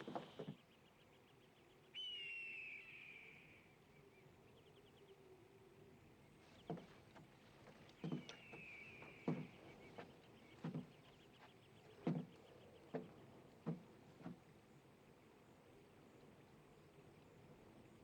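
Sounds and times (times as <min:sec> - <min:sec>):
footsteps on wooden ties: 0:07.6 - 0:12.3, 0:13.0 - 0:14.4.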